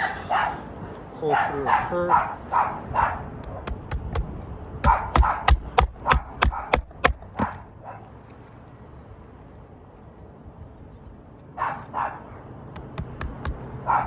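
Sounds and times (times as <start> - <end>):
dog barking: 0.0 - 3.3, 4.8 - 8.1, 11.6 - 12.4
hammer blows on roof: 3.4 - 7.6, 12.7 - 14.0
light hammer taps: 12.8 - 13.8.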